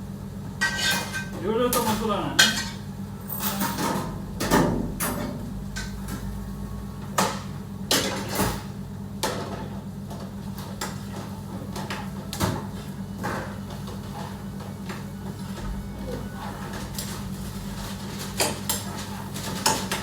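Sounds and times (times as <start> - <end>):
steady low hum: 0.0 - 9.3
utensils and pans clattering: 0.6 - 6.0, 18.2 - 20.0.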